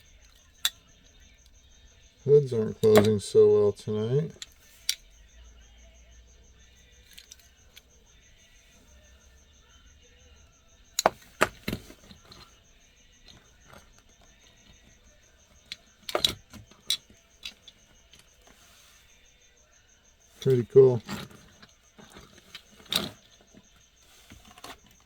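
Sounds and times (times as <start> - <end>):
clicks of model car handled: 7.1 - 7.9, 11.0 - 12.5, 15.6 - 18.6, 20.4 - 23.2.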